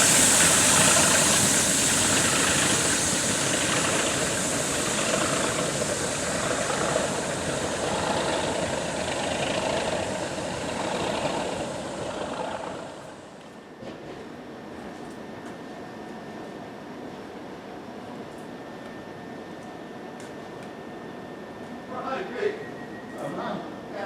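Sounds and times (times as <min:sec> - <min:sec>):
diesel locomotive engine running: 0:00.0 - 0:14.9.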